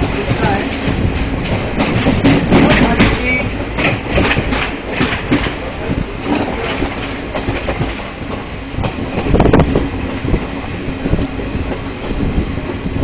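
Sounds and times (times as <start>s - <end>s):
wheel clatter and knocks: 0.0s - 9.8s
train rumbling on rails: 0.0s - 13.0s.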